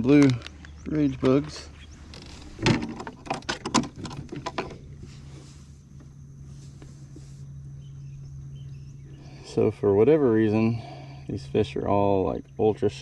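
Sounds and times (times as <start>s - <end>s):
steady low hum: 0.0s - 13.0s
sharp clicks and knocks: 2.1s - 4.8s.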